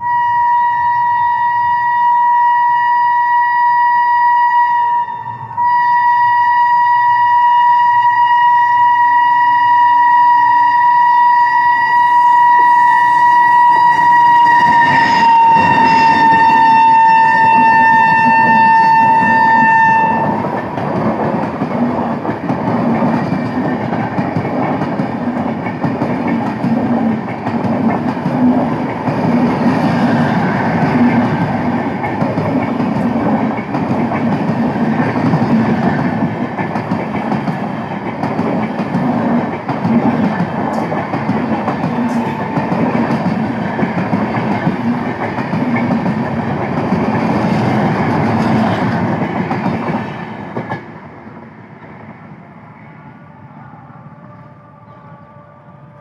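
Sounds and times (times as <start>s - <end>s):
locomotive horn: 0.0s - 20.7s
train rumble: 7.9s - 56.0s
wheels clacking over rail joints: 13.9s - 50.9s.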